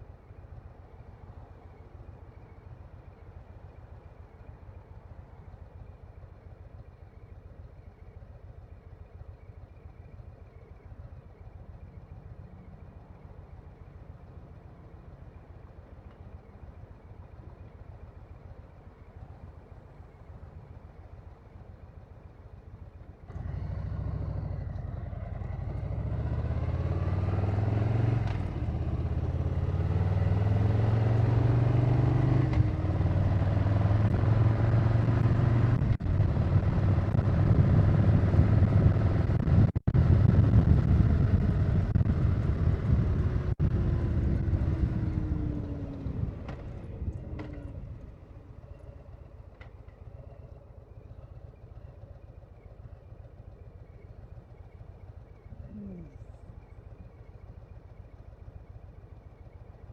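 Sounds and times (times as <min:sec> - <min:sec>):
motorcycle engine accelerating: 0:23.1 - 0:59.9.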